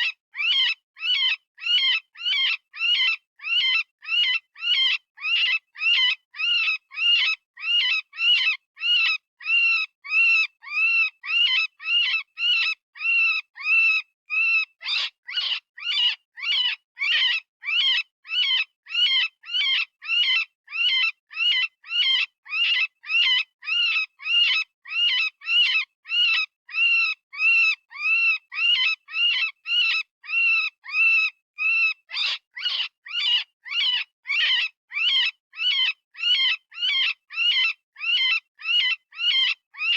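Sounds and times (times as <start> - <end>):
high-pitched rabbit distress screams: 13.6 - 23.4, 25.5 - 39.9.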